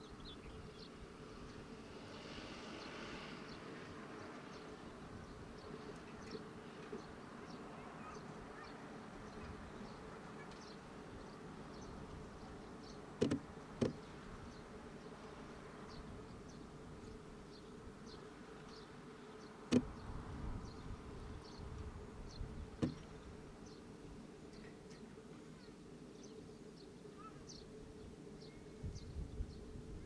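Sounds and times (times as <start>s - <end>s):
sharp knocks: 22.8s - 23.0s.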